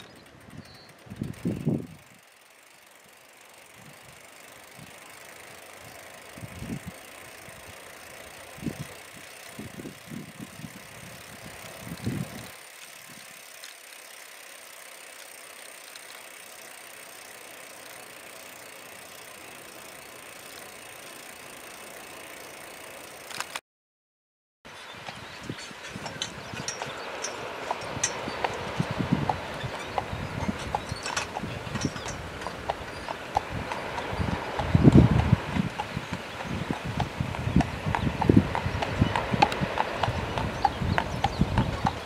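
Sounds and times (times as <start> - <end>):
wind hiss during bicycle ride: 0.0 - 23.6, 24.7 - 42.0
wind buffeting microphone: 0.3 - 2.2, 5.9 - 13.4, 24.8 - 42.0.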